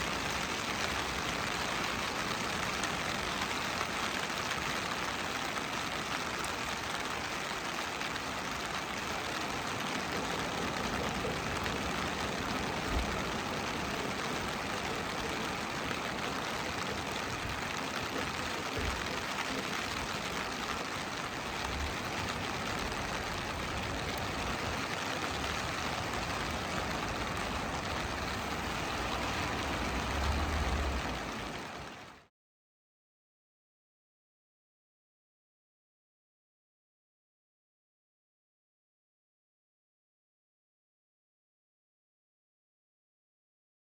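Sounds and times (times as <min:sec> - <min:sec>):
ocean surf on a beach: 0:00.0 - 0:32.3.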